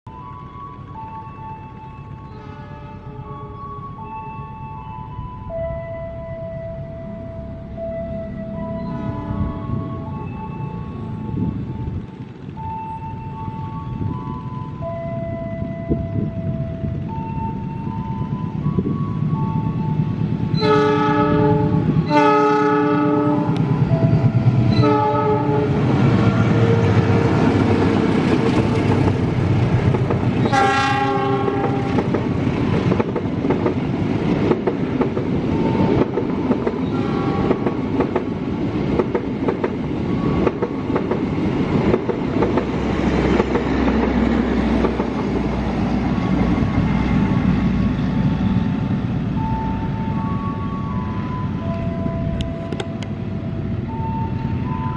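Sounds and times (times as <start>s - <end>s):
train horn blasts: 2.3s - 3.7s, 5.7s - 11.5s, 20.5s - 27.6s, 30.4s - 32.2s, 36.8s - 37.8s
train wheels rumbling on rails: 6.4s - 54.9s.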